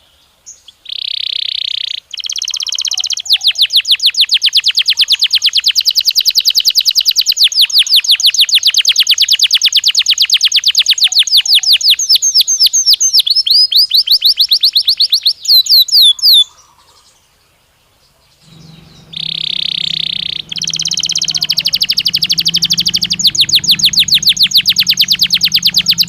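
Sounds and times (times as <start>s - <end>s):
canary trilling: 18.4s - 26.0s.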